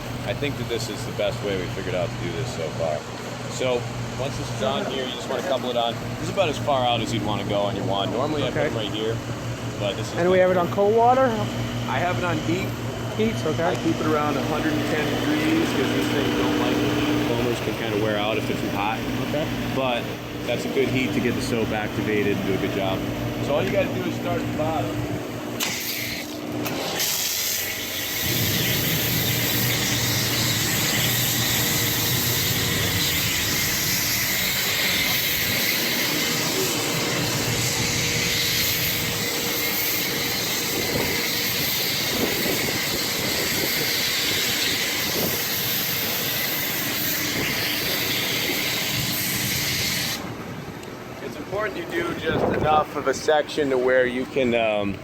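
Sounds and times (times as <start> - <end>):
pressure washer spraying foam: 13.4 - 23.0, 25.6 - 50.2.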